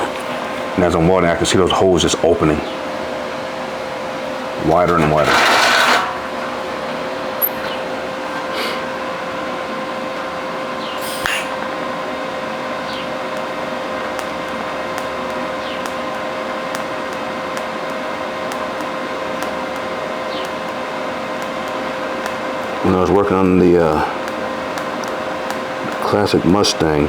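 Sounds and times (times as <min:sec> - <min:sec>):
welding arc hissing and buzzing: 0:05.1 - 0:09.4, 0:10.6 - 0:27.0.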